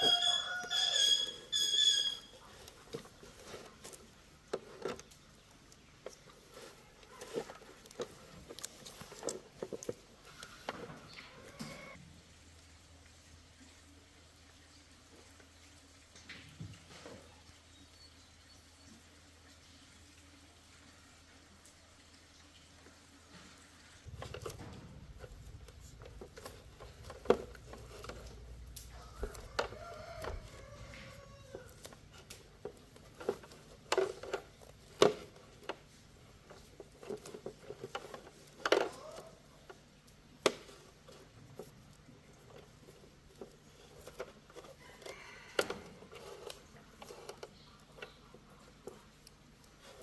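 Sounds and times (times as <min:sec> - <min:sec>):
small objects clicking and knocking: 0:24.1 - 0:50.0.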